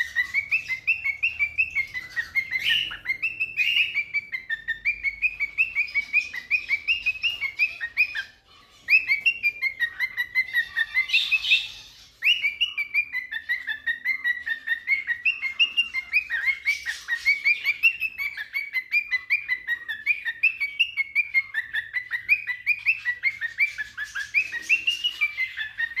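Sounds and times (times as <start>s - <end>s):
cockatiel chirping: 0.0s - 26.0s.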